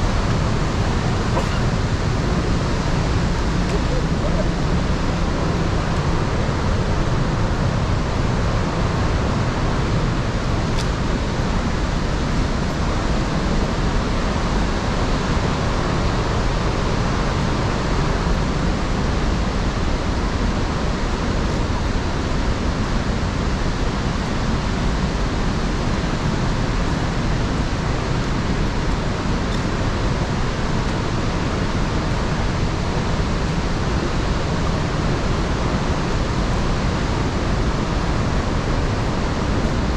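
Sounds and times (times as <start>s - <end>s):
waterfall rushing: 0.0s - 17.7s.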